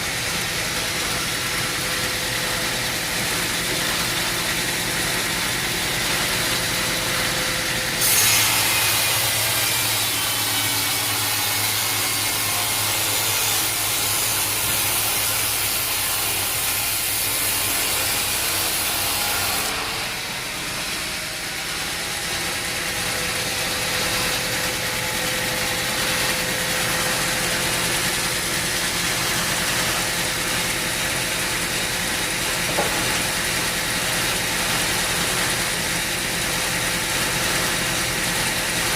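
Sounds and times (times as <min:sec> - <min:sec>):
mill engine running: 0:00.0 - 0:10.0, 0:10.7 - 0:38.9
saw blade cutting log: 0:00.0 - 0:38.9.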